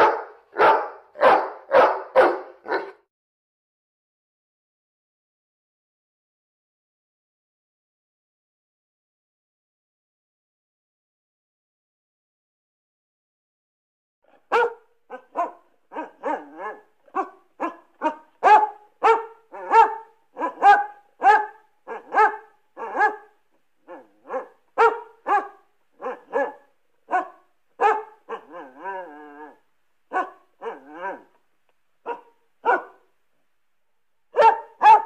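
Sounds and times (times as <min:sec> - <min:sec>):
cartoon dog barking: 0:00.0 - 0:03.0, 0:14.3 - 0:31.4, 0:32.1 - 0:33.0, 0:34.4 - 0:35.0
wavering dog call: 0:23.9 - 0:31.4.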